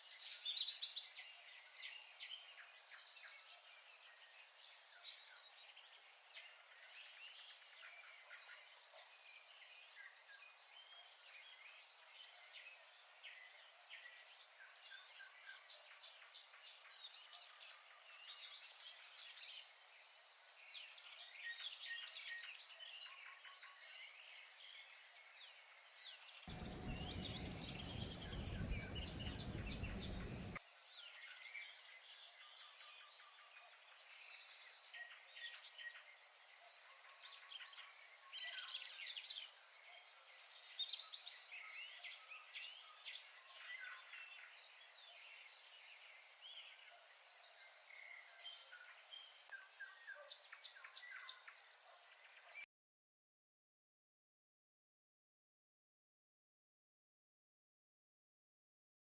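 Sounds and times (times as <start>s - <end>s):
small birds chirping: 0.0s - 52.7s
noise with steady high whine: 26.5s - 30.6s.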